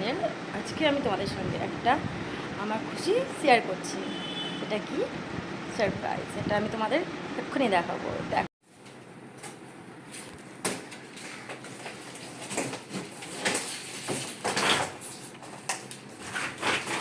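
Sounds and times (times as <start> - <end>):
scraping or rustling: 10.1 - 17.0.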